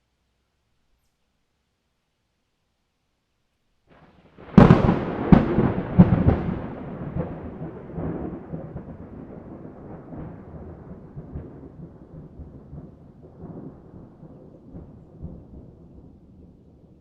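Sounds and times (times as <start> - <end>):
rolling thunder rumble: 3.9 - 17.0
thunder cracks: 4.3 - 17.0.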